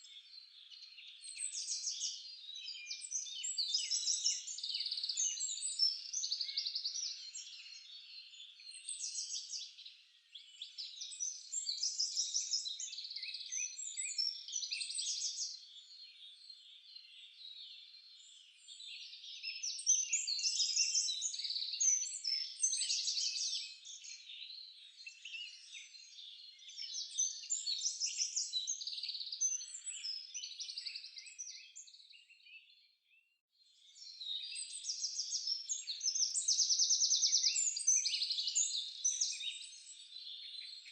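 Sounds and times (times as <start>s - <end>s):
songbirds singing and calling: 0.0s - 40.9s.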